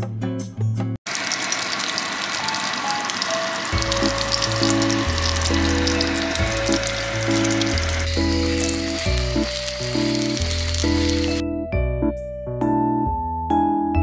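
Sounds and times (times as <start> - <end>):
sandwich frying in oil: 1.1 - 11.4.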